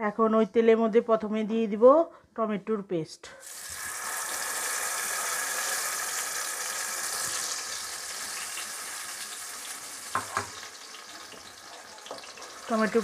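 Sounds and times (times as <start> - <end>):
paste sizzling in hot oil: 3.4 - 13.0.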